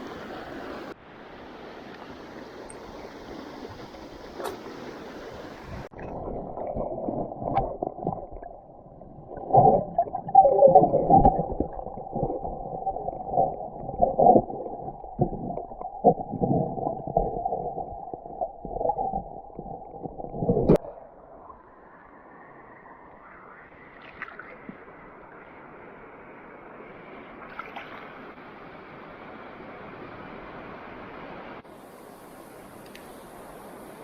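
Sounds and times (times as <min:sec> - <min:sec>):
muffled water gurgling and sloshing: 0:00.0 - 0:28.6
splashes and bubbling: 0:02.4 - 0:21.0, 0:23.8 - 0:24.8, 0:27.5 - 0:28.1.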